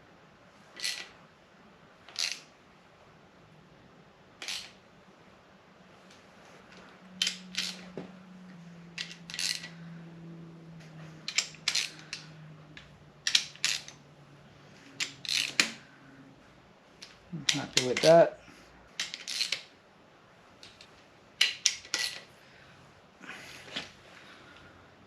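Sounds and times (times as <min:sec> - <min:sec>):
ratchet wrench clicking: 0:00.8 - 0:01.1, 0:02.1 - 0:02.4, 0:07.2 - 0:07.9, 0:09.0 - 0:09.8, 0:11.2 - 0:14.0, 0:15.0 - 0:15.8, 0:19.0 - 0:19.7.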